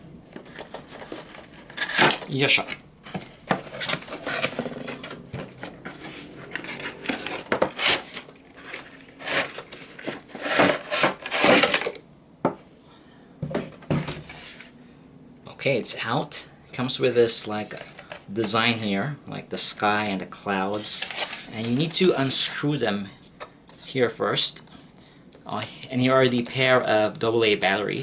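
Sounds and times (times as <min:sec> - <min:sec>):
cardboard packaging rustling: 0:00.3 - 0:12.0.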